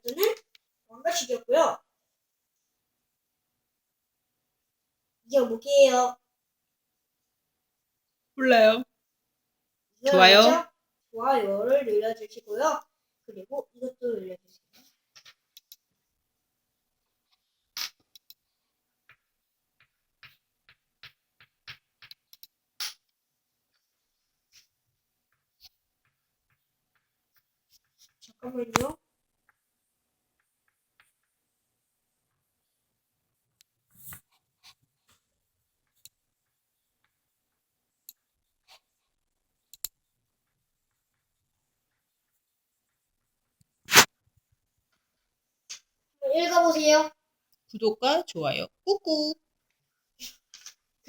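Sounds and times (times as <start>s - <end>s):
pencil strokes: 23.7s - 28.4s, 30.4s - 45.4s.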